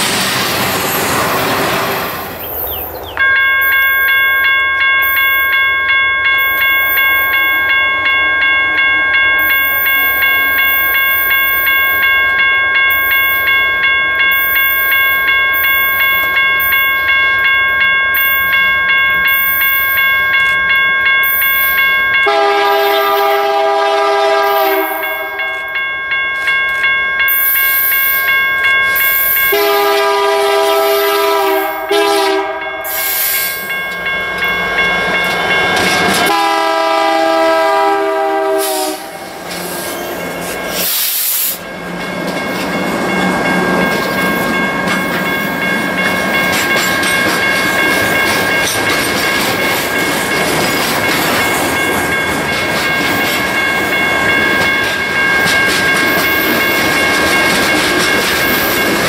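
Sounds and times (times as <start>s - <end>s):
freight cars rumbling on rails: 0.0s - 3.1s, 33.6s - 59.0s
high wheel squeal: 0.0s - 3.2s, 39.5s - 41.7s
locomotive horn blasts: 22.2s - 25.6s, 29.5s - 32.8s, 36.2s - 39.6s
wheels clickety-clack over joints: 35.1s - 36.3s, 42.2s - 59.0s.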